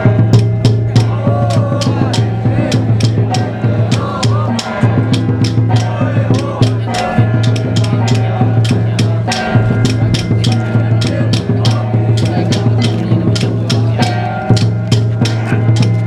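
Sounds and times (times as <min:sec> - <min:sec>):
drum and cymbal strikes: 0:00.0 - 0:16.0
sustained low metallic tone: 0:05.9 - 0:14.7.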